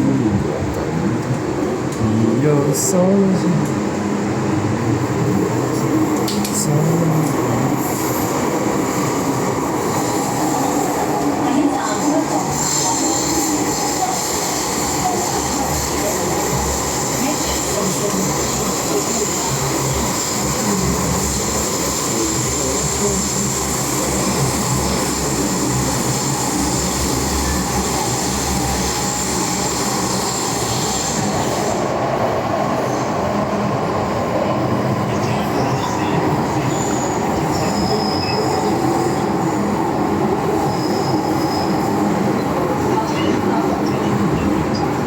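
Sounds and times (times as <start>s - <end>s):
train wheels rumbling on rail: 0.0s - 45.0s
wheel squeal: 36.7s - 38.9s, 40.7s - 41.9s.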